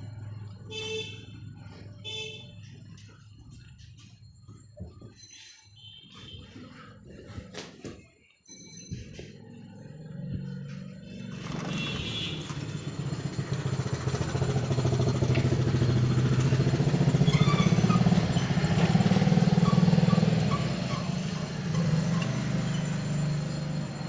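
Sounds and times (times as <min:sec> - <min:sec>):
vehicle engine passing by: 0:09.4 - 0:24.0.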